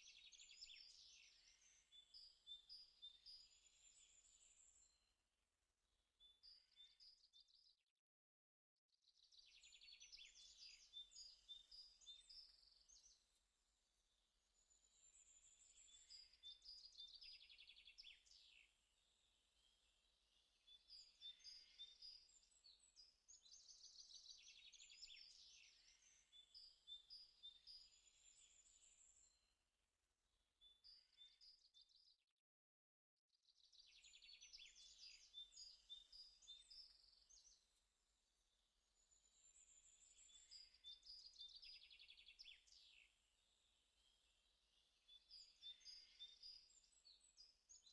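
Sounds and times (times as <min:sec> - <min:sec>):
birds chirping and trilling: 0:14.1 - 0:29.4, 0:38.9 - 0:47.9.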